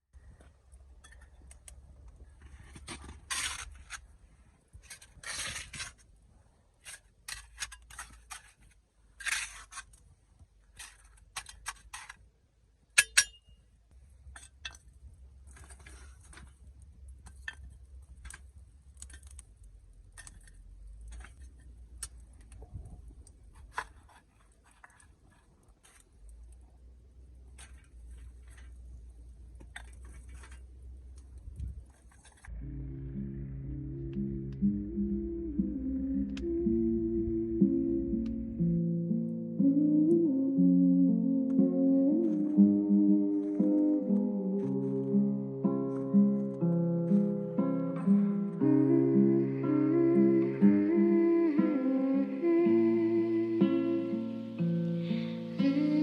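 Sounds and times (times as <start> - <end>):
camp gear scraping and rustling: 2.3 - 10.0
sharp metallic clink: 13.0 - 13.6.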